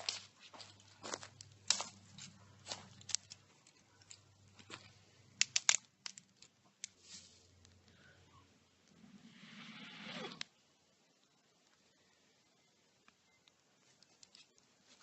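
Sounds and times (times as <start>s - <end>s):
crunching handling noises: 0.0s - 7.9s
sharp clicks: 5.4s - 7.0s.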